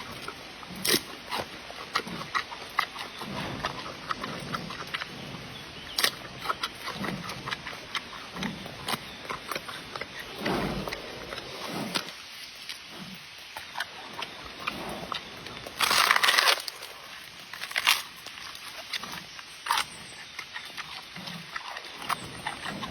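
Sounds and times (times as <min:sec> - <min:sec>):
crunching clicks: 0:00.2 - 0:22.9.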